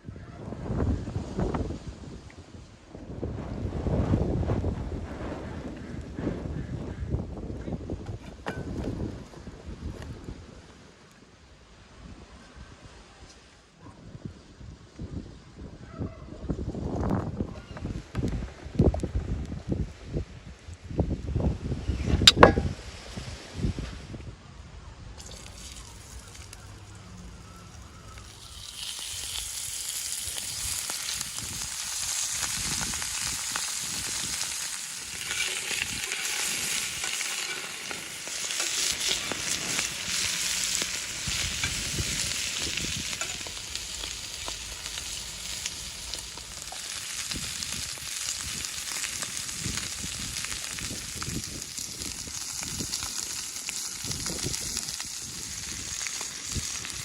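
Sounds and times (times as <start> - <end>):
food sizzling in hot oil: 25.2 - 57.0.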